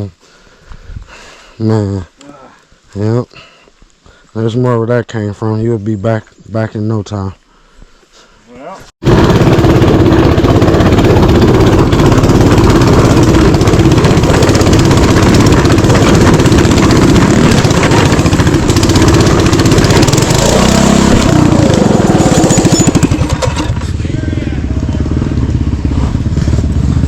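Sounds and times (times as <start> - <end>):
small engine revving: 9.0 - 27.0.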